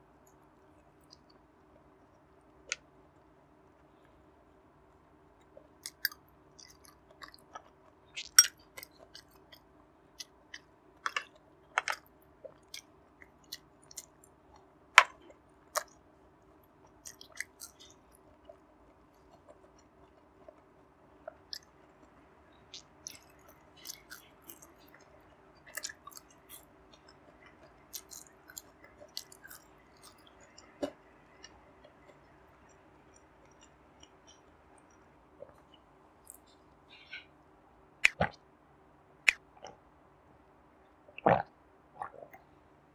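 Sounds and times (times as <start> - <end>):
faint steady hum: 0.0 - 42.9
person chewing food: 5.4 - 16.0, 16.8 - 37.2.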